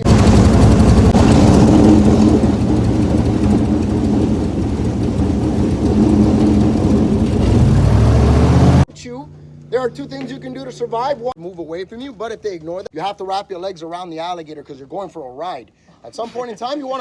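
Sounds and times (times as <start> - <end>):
boat engine running: 0.0 - 8.9.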